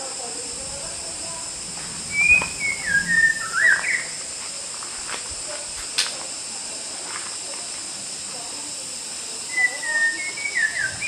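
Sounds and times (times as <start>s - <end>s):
high-pitched insect drone: 0.0s - 11.0s
bird singing warbling phrase: 2.1s - 4.2s, 9.5s - 11.0s.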